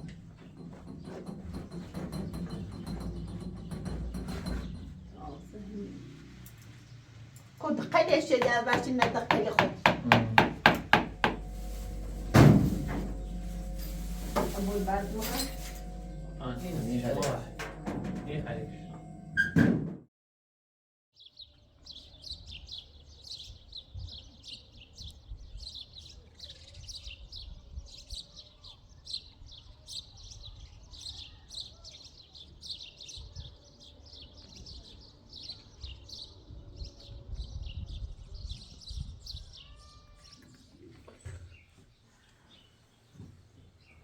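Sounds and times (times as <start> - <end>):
low rumble: 10.6 - 19.4
small birds chirping: 21.2 - 44.0.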